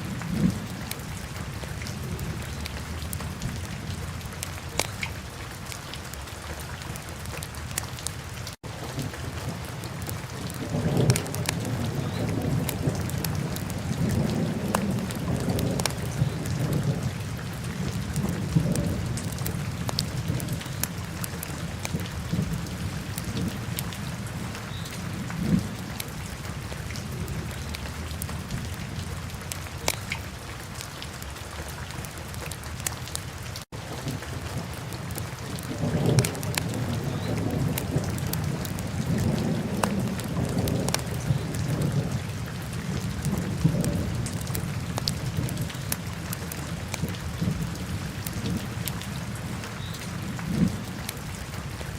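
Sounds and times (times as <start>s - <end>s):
wood crackling and popping: 4.3s - 5.2s, 9.9s - 13.8s, 14.6s - 16.4s, 18.1s - 22.1s, 29.4s - 30.2s, 35.0s - 41.4s, 43.2s - 47.6s.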